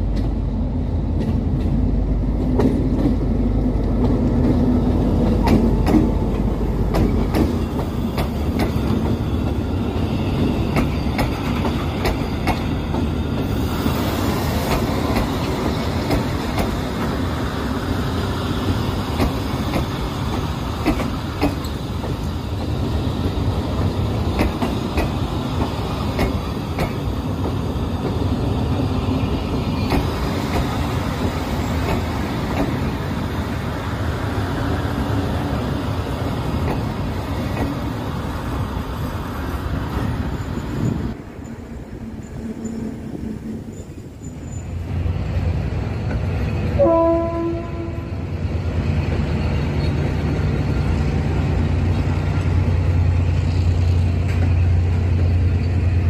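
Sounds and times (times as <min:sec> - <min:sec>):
train rumbling on rails: 0:00.0 - 0:56.0
train wheel clicks: 0:03.8 - 0:09.3, 0:10.7 - 0:13.5, 0:14.6 - 0:17.2, 0:18.6 - 0:28.8, 0:29.4 - 0:32.9
train horn blast: 0:46.8 - 0:48.3.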